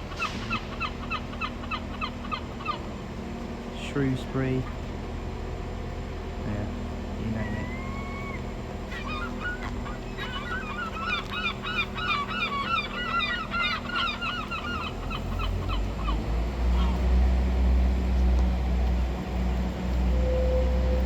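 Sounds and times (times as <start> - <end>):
gull calling: 0.0 - 3.1, 7.2 - 17.8
diesel train rumble: 0.0 - 21.0.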